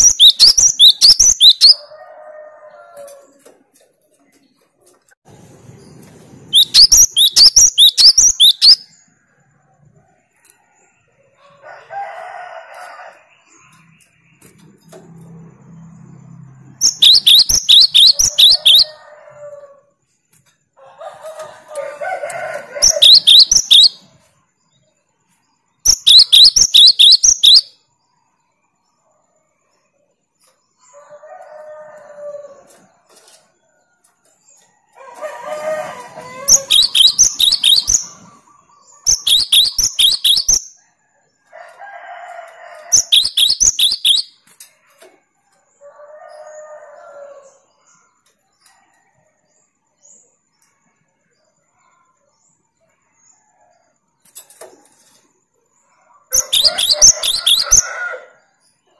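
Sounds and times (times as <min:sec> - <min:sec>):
bird fast high song bursts: 0:00.0 - 0:01.8, 0:06.5 - 0:08.8, 0:16.8 - 0:18.9, 0:22.8 - 0:24.0, 0:25.9 - 0:27.7, 0:36.5 - 0:38.2, 0:39.1 - 0:40.6, 0:43.0 - 0:44.3.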